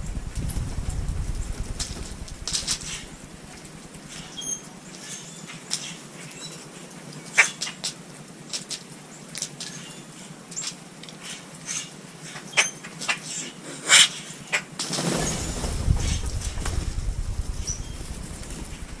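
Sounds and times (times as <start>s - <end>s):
birds pecking clicks: 1.2s - 5.1s.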